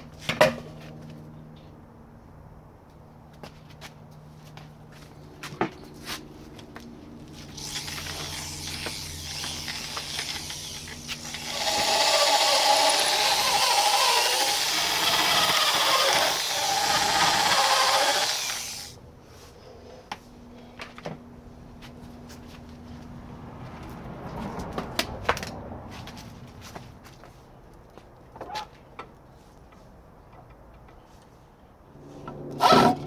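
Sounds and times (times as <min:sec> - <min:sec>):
power tool cutting wood: 0:07.4 - 0:19.0, 0:32.5 - 0:33.0.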